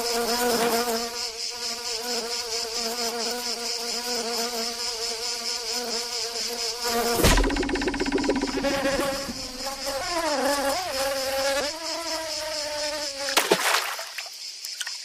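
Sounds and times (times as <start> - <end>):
cartoon insect buzz: 7.0 - 11.6
loud thump: 7.1 - 10.2.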